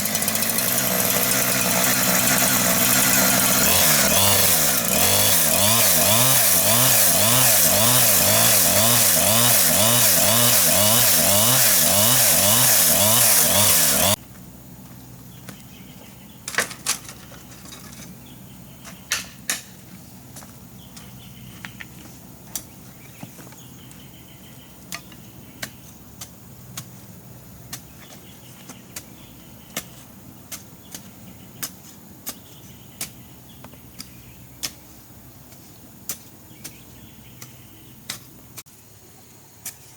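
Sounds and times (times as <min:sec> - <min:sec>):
chainsaw running at high speed: 0:00.0 - 0:14.2.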